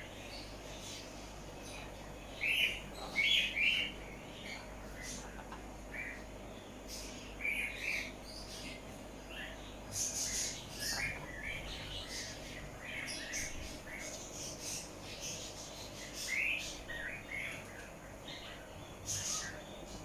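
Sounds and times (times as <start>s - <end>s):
caged birds chirping: 0.0s - 20.0s.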